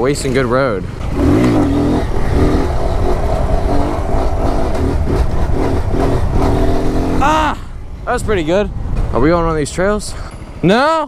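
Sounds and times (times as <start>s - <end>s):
wind rumble on microphone: 0.0s - 10.6s
motorcycle engine revving: 0.2s - 7.5s.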